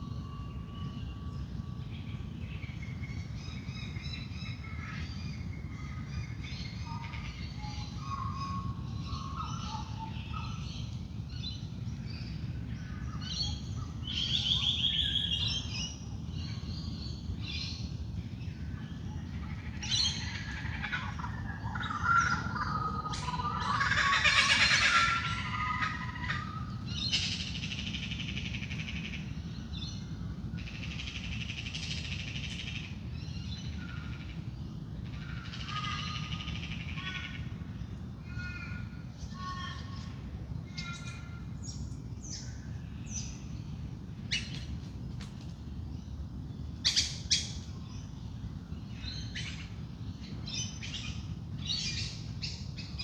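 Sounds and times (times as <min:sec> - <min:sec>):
steady low hum: 0:00.0 - 0:53.0
birds chirping and singing: 0:00.1 - 0:30.0.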